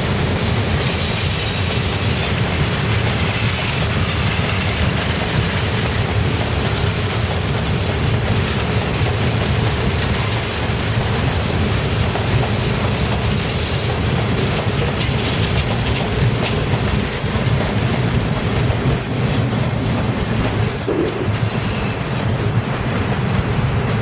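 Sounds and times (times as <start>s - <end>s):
freight train wheels clacking: 0.0s - 24.0s
wheel squeal: 0.8s - 2.2s, 5.4s - 8.8s, 10.2s - 11.2s, 12.4s - 14.1s, 21.3s - 22.2s.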